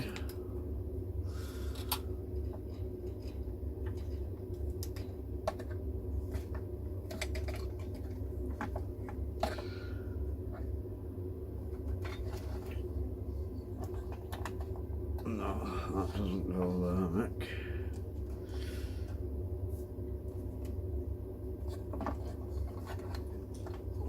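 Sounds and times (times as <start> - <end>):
steady low hum: 0.0 - 24.0
plastic parts clicking and tapping: 1.7 - 9.6.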